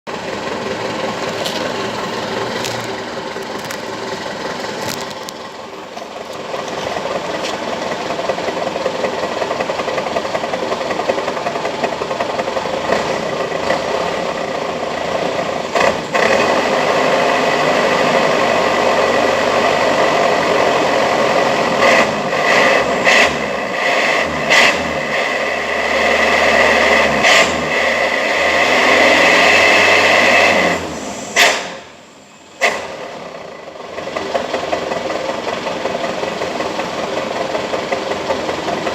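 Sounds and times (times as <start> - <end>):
engine revving through exhaust: 12.7 - 31.9.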